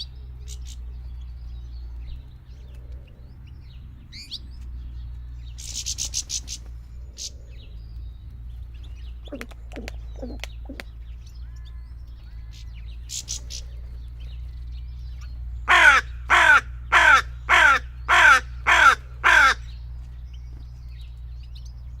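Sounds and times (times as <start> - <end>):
crow cawing: 15.6 - 19.8.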